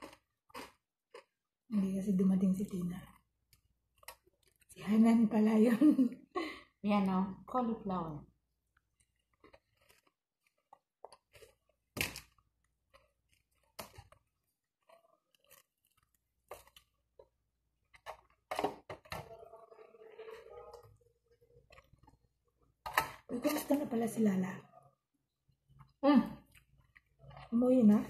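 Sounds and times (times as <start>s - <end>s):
chewing crispy fried chicken: 0.0s - 1.7s, 2.7s - 4.8s, 8.5s - 22.8s, 25.6s - 28.0s.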